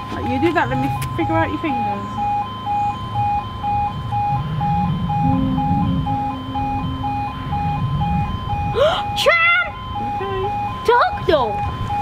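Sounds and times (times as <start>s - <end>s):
level crossing alarm beeping: 0.0s - 12.0s
steady low hum: 1.6s - 10.8s
low rumble: 3.0s - 8.9s.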